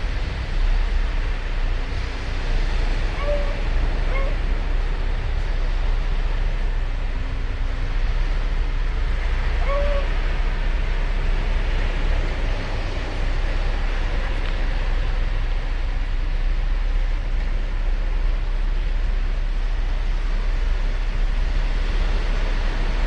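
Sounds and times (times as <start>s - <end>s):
ocean waves breaking on beach: 0.0s - 23.0s
short pitched call: 9.6s - 10.1s.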